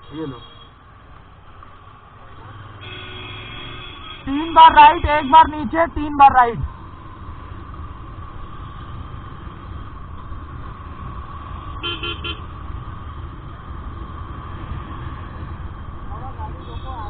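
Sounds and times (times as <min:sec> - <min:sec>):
vehicle horn beeps: 0:02.8 - 0:05.5, 0:11.8 - 0:12.4
low vehicle rumble: 0:04.2 - 0:17.0.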